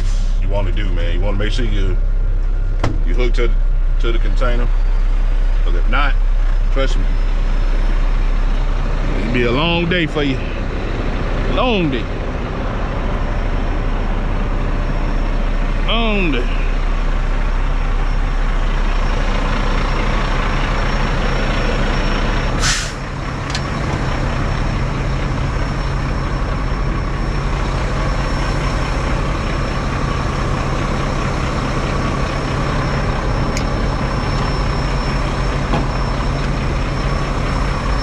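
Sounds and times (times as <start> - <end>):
air brake hiss: 0.0 - 0.4, 22.6 - 23.1
diesel truck engine idling: 0.0 - 38.0.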